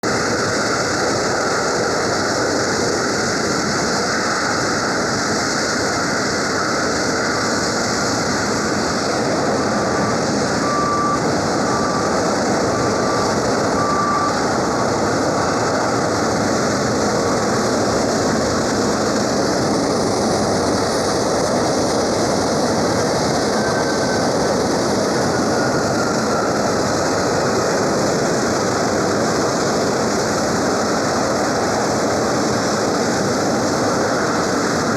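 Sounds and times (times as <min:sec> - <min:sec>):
jet engines running loudly: 0:00.0 - 0:34.9
short high beeps: 0:10.6 - 0:12.1, 0:13.8 - 0:14.4.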